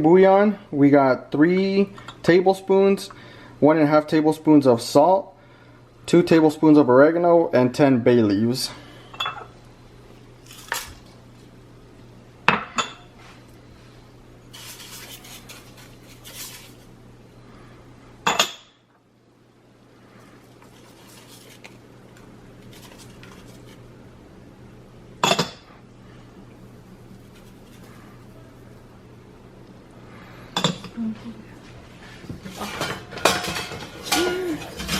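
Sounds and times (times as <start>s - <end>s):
soft rustling: 14.5s - 16.9s, 20.2s - 23.8s
metal utensils clinking: 32.6s - 34.9s.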